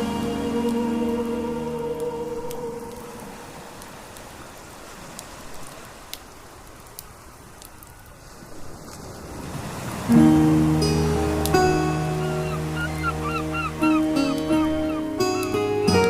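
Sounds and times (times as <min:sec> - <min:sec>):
music: 0:00.0 - 0:02.7, 0:10.1 - 0:16.0
wood fire crackling: 0:01.9 - 0:09.2.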